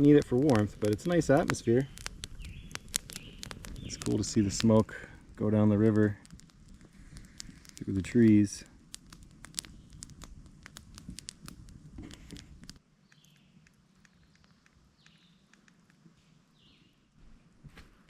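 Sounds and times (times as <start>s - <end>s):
campfire crackling and popping: 0.0s - 16.0s
faint bird chirps: 13.0s - 17.1s.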